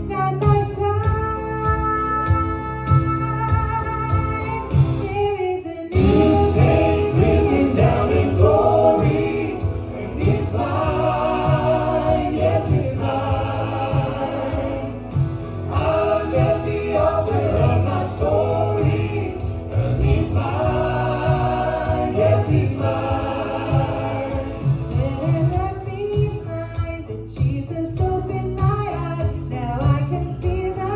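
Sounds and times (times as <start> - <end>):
gospel choir singing: 5.9 - 26.5
instrumental accompaniment: 6.0 - 28.9.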